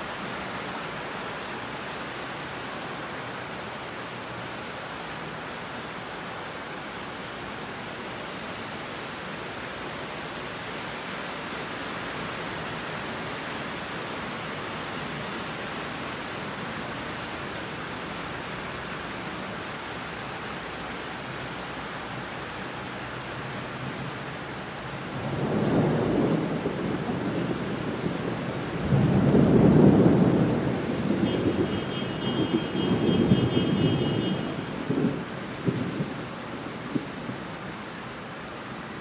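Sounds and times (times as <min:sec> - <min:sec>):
heavy rain: 0:00.0 - 0:39.0
thunder rumble: 0:25.1 - 0:37.6.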